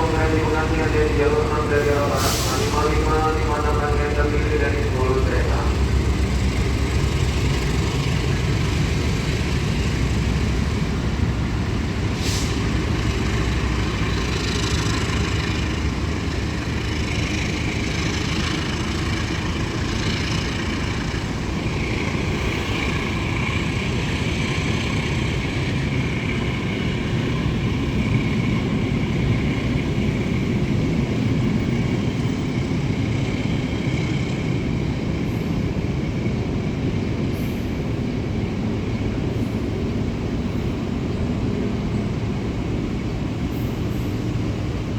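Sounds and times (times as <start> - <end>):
train wheels rumbling on rails: 0.0 - 44.9.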